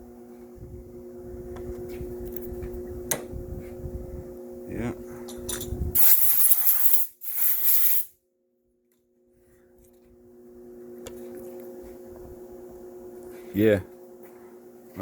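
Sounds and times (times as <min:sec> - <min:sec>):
loud hiss bursts: 0:06.0 - 0:08.1.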